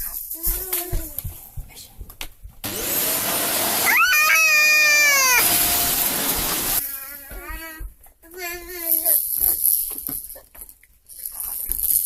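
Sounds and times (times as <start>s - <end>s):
vacuum cleaner motor: 2.6s - 6.8s
cat meowing: 3.8s - 6.0s.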